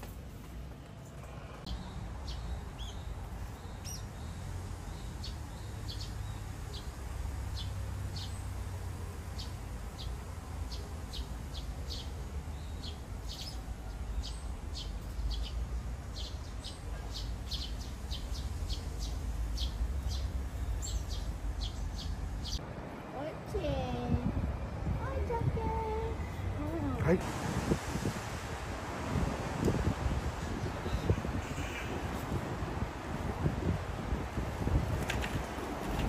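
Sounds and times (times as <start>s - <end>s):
birds chirping: 0.8s - 22.6s, 30.0s - 33.3s.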